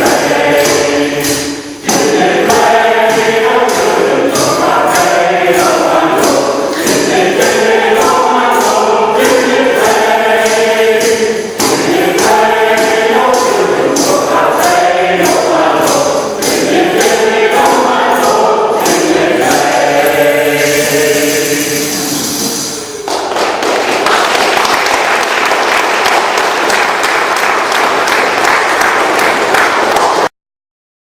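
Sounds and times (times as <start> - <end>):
choir singing: 0.0 - 23.1.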